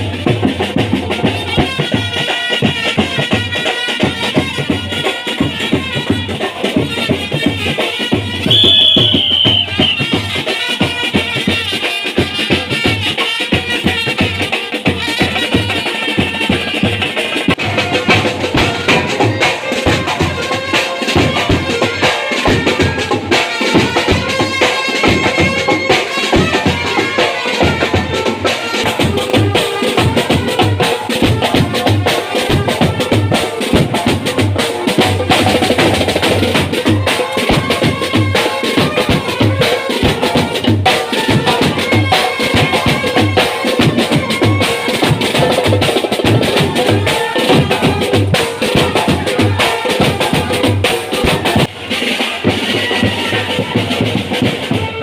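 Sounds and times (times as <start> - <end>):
marching band playing: 0.0 - 55.0
snare drum: 0.0 - 55.0
bass drum beat: 4.3 - 10.4, 27.7 - 51.8.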